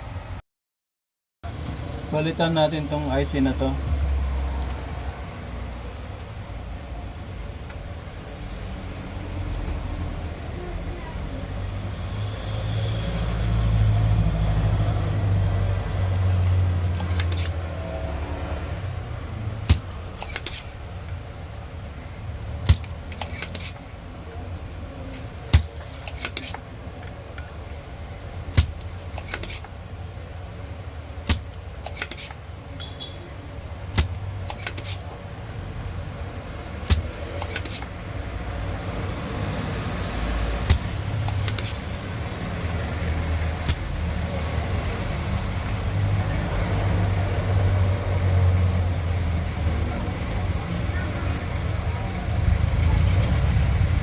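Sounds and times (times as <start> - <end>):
small tools clicking and tapping: 16.4 - 17.6, 19.6 - 21.2, 21.8 - 23.9, 24.6 - 29.8, 31.2 - 32.8, 33.8 - 35.1, 36.8 - 38.0, 40.6 - 41.9.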